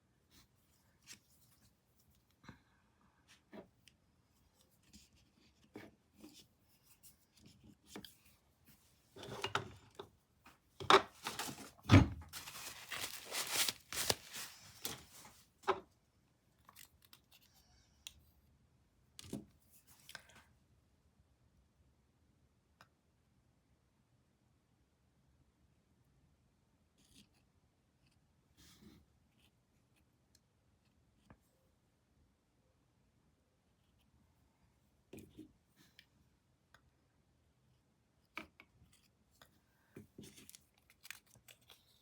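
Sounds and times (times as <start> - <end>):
rustling and scraping: 10.5 - 15.8.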